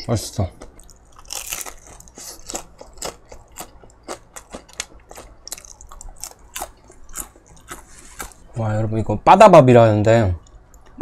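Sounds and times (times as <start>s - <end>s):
crisp chewing crunches: 0.5s - 8.5s.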